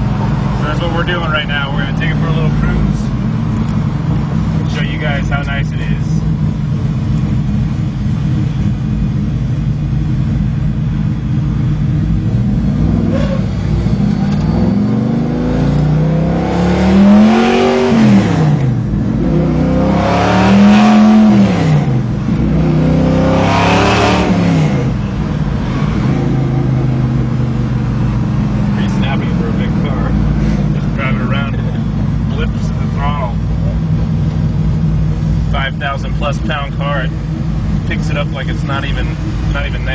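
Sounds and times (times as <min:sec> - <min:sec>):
engine revving: 0:11.1 - 0:39.9.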